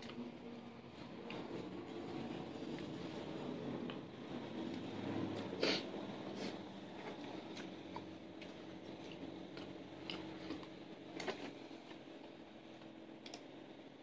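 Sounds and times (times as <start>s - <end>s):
faint steady hum: 0.0s - 14.0s
chewing clicks and smacks: 7.1s - 11.4s, 13.2s - 13.5s.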